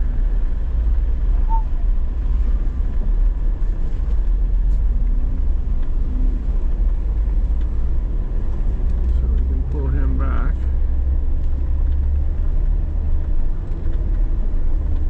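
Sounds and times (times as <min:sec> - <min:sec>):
truck engine low rumble: 0:00.0 - 0:15.0
short high chirp: 0:01.4 - 0:01.8.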